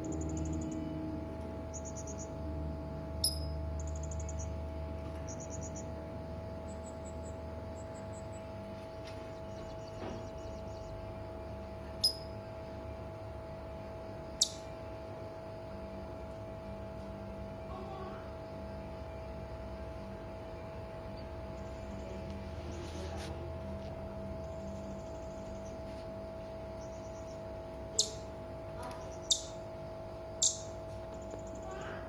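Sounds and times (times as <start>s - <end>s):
electrical hum: 0.0s - 32.0s
parrot high rattling trills: 14.4s - 14.6s, 27.9s - 28.3s, 29.0s - 29.6s, 30.4s - 31.8s.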